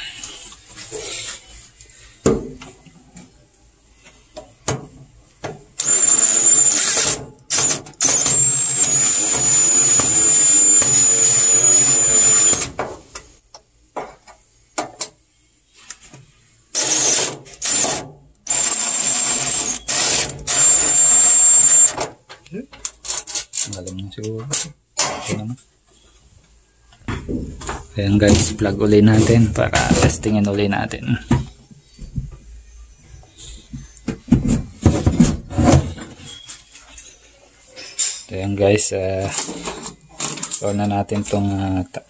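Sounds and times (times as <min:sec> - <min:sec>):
cordless drill whining: 0:05.8 - 0:12.7, 0:16.8 - 0:17.9, 0:18.5 - 0:22.0.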